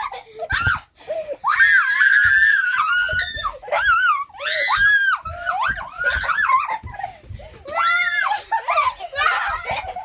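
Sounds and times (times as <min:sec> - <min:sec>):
child screaming: 0:01.4 - 0:06.6.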